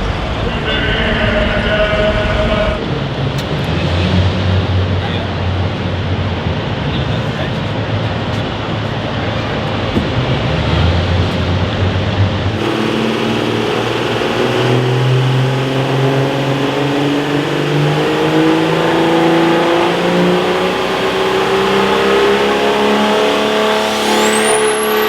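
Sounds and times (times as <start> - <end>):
high whine: 0.0 - 3.2, 12.5 - 25.0
truck engine running hard under load: 0.0 - 25.0.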